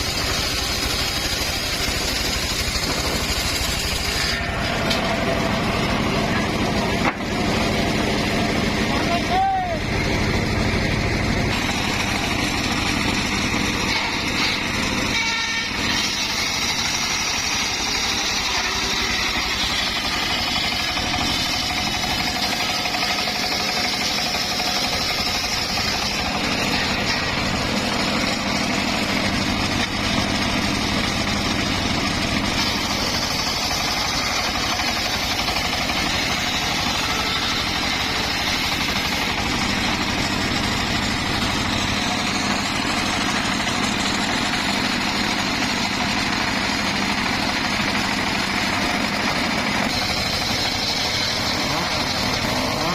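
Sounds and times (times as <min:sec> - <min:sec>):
sawmill machine drone: 0:00.0 - 0:52.9.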